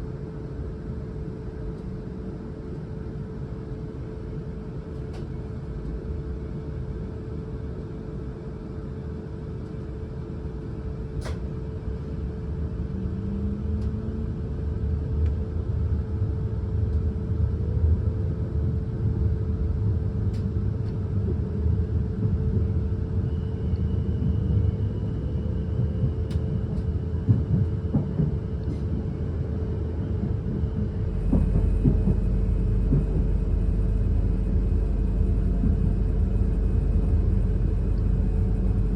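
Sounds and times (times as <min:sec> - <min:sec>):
train wheels rumbling on track: 0:25.7 - 0:38.9
deeper rumble: 0:31.0 - 0:38.9
electric hum: 0:31.0 - 0:38.9.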